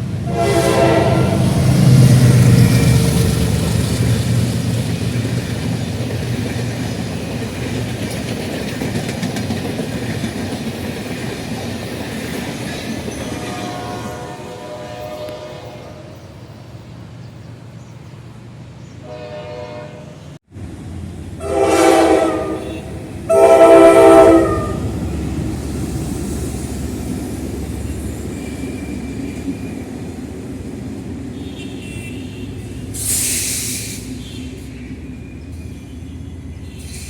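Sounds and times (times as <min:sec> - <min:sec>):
train rumbling past: 0:00.0 - 0:37.0
locomotive horn blasts: 0:00.2 - 0:01.8, 0:13.2 - 0:16.2, 0:19.0 - 0:20.4, 0:21.4 - 0:25.1
short hiss: 0:33.0 - 0:34.2.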